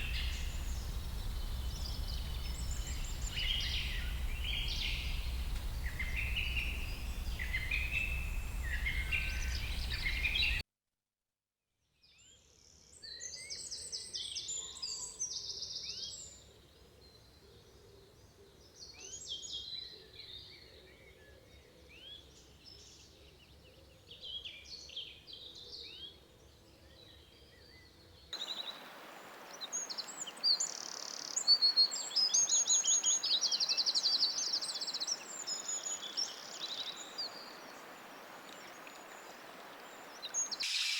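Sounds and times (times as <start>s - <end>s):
low hum: 0.0s - 10.6s
songbirds singing and chirping: 0.0s - 10.6s, 17.0s - 40.9s.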